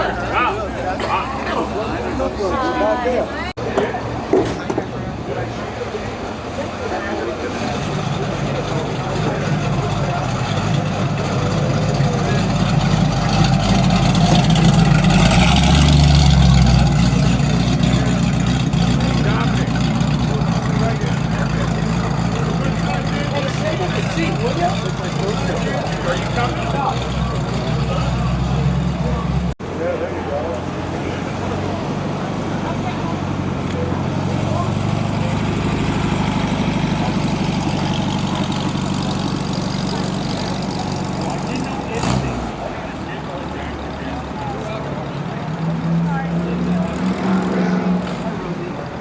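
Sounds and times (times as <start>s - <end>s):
car engine idling: 3.1s - 47.1s.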